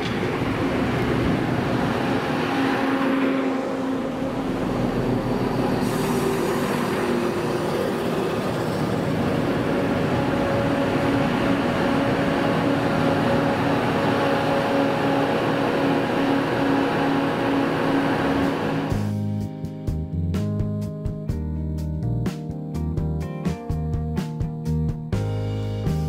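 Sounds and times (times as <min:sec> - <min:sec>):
train passing with steady hum: 0:00.0 - 0:19.2.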